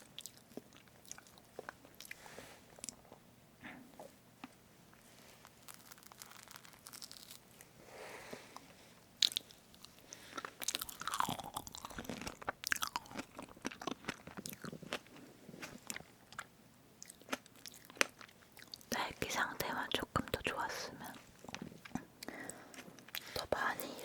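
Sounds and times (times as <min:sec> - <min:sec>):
wet chewing and biting: 0:09.2 - 0:18.9.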